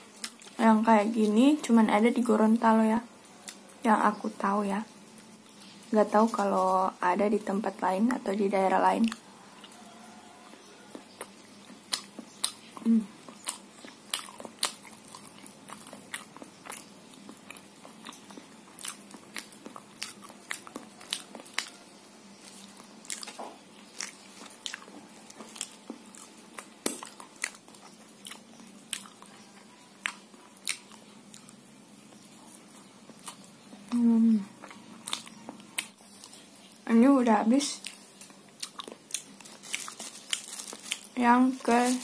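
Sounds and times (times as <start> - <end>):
small crunches: 37.7 - 42.0.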